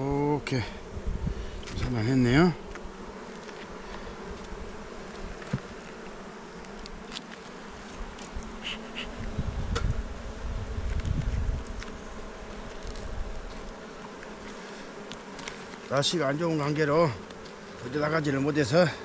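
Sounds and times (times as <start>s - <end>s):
honeybees buzzing: 0.0s - 19.0s
low rumble on microphone: 0.9s - 2.0s, 9.2s - 11.8s.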